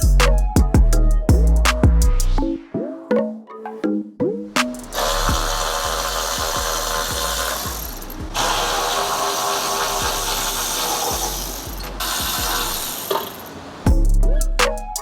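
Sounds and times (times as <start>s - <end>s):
background music with steady beat: 0.0s - 13.0s, 13.8s - 15.0s
power tool running: 4.9s - 13.6s.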